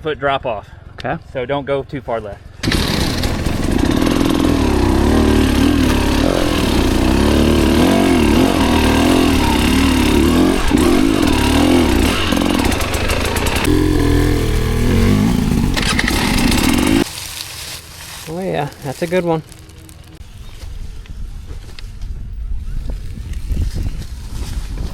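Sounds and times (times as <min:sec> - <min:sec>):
dirt bike engine revving: 0:02.6 - 0:20.2.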